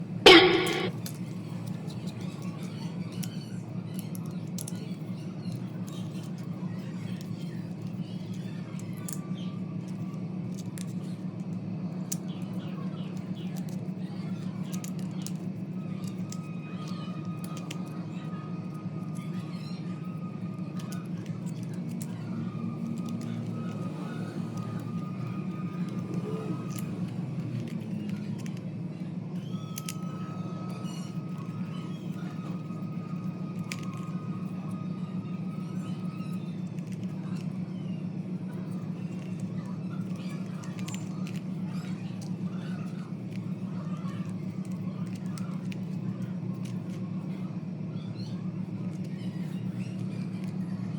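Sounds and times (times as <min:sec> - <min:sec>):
steady low hum: 0:00.0 - 0:00.9
short loud tone: 0:00.3 - 0:00.9.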